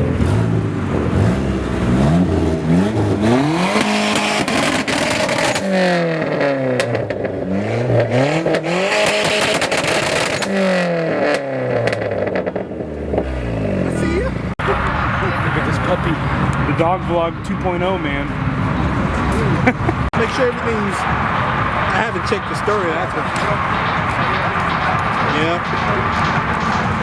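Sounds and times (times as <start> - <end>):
car engine revving hard: 0.0 - 27.0
exhaust crackles and pops: 1.0 - 13.5, 19.9 - 27.0.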